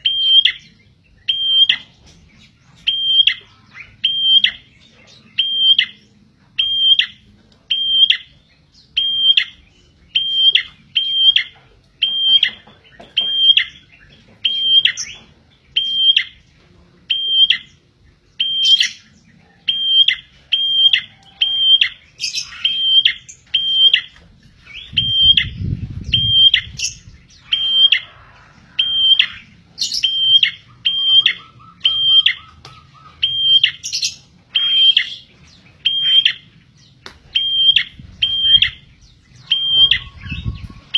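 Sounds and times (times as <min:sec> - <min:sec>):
bird whistled call: 0:18.4 - 0:19.1, 0:19.7 - 0:24.1, 0:24.7 - 0:36.4, 0:37.3 - 0:40.9.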